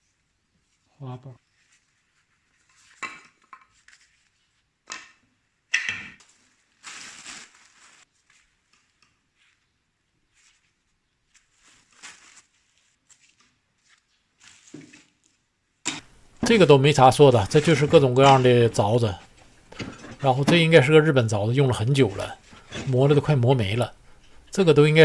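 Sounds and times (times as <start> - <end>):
tools knocking and scraping: 16.0 - 25.0.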